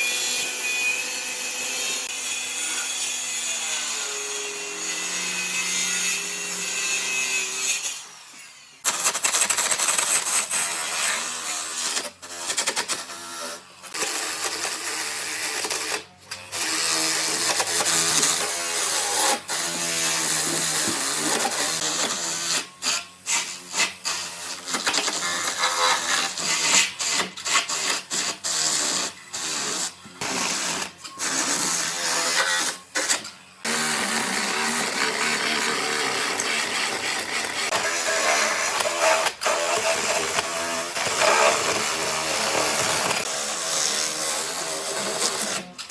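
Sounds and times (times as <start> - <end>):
power tools working wood: 10.0 - 45.9.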